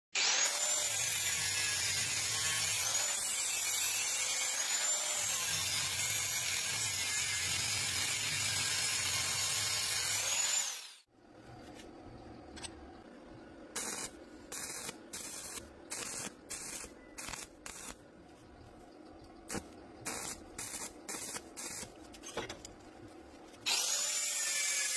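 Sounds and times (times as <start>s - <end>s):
power tool grinding metal: 0.2s - 11.0s, 23.7s - 24.9s.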